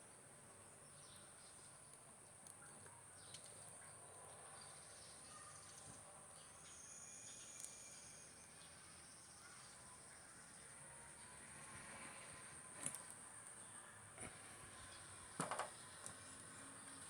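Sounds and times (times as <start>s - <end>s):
faint ticks and chirps: 0.0s - 15.2s
high insect drone: 6.6s - 12.7s.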